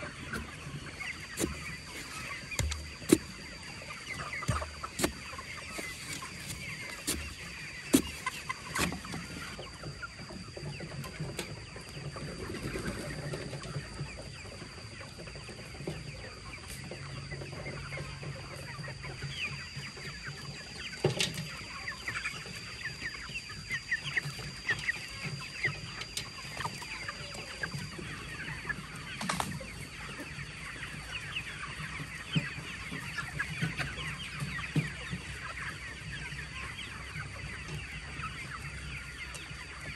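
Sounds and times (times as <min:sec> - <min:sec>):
fowl clucking: 0:00.0 - 0:39.9.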